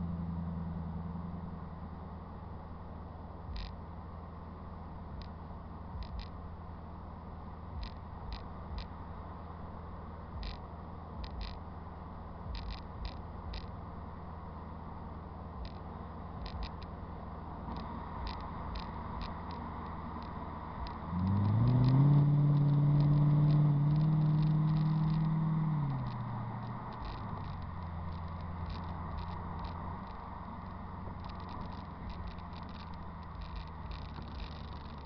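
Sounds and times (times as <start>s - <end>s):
car engine and exhaust accelerating: 0.0s - 35.0s.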